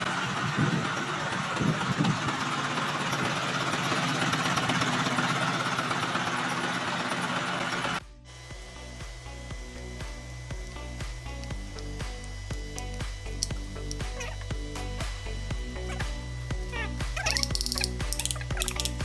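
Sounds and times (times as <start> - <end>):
diesel engine idling: 0.0 - 17.2
quiet music: 8.0 - 19.0.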